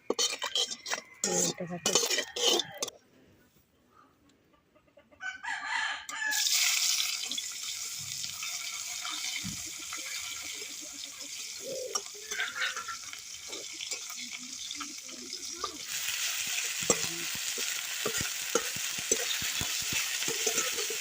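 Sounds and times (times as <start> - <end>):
rooster crowing: 5.2 - 6.5
food frying in hot oil: 6.3 - 21.0.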